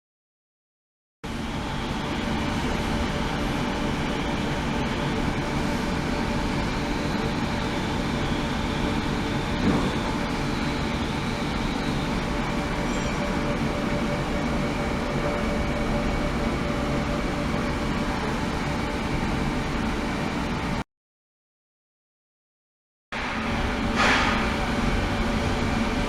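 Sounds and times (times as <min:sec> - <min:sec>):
machine rumbling: 0:23.2 - 0:26.0.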